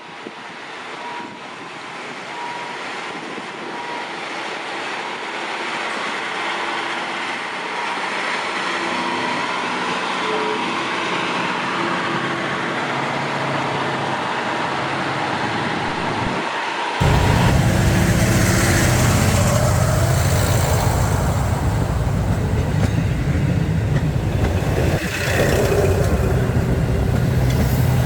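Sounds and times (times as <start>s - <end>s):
diesel railcar engine: 0.4s - 28.0s
wheel-on-rail rumble: 17.0s - 28.0s.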